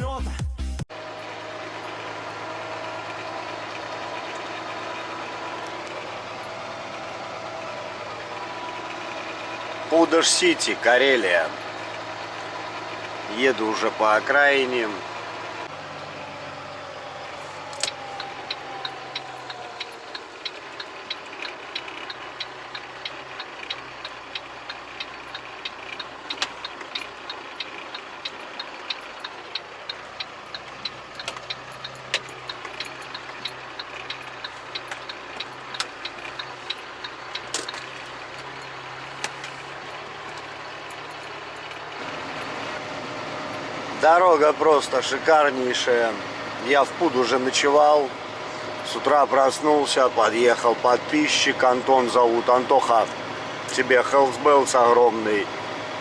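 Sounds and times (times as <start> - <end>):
diesel engine running: 0.0 - 56.0
fast even ticking: 17.7 - 42.0.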